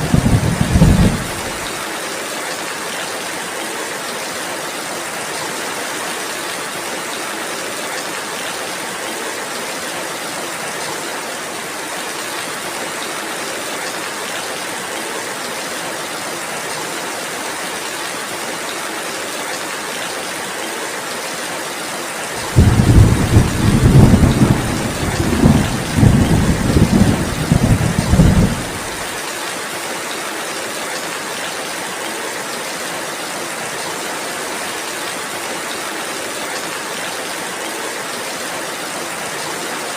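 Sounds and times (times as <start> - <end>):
thunder rumbling: 0.0 - 1.7, 22.4 - 29.1
steady rainfall: 0.0 - 39.9.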